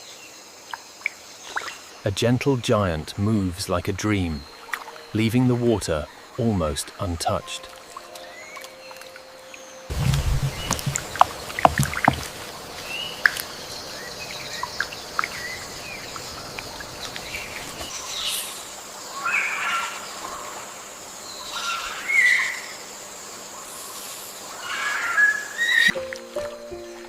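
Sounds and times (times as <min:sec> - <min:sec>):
birds chirping and calling: 0:02.7 - 0:20.5.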